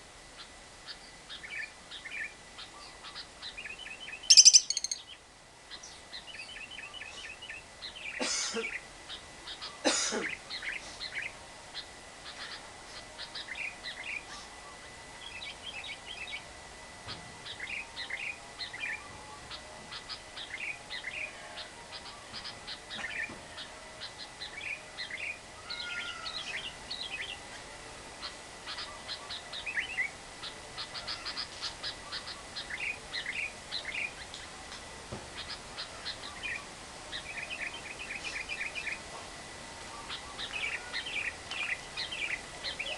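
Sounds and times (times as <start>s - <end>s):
lovebirds chattering: 0.4s - 16.5s, 17.4s - 27.6s, 28.2s - 34.3s, 35.3s - 39.1s, 39.8s - 42.9s
faint steady high tone: 4.1s - 5.1s.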